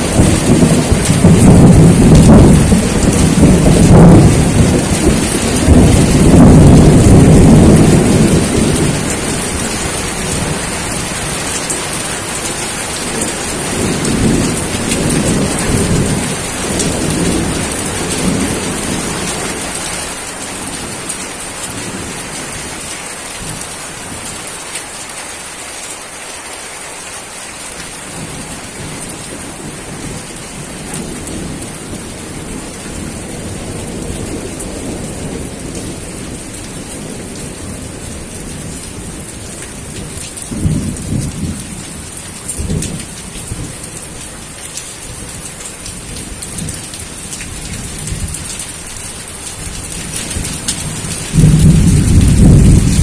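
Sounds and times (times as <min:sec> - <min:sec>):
rolling thunder: 0:00.0 - 0:12.0, 0:12.8 - 0:19.9, 0:28.2 - 0:43.8, 0:49.6 - 0:53.0
steady rain: 0:00.0 - 0:53.0.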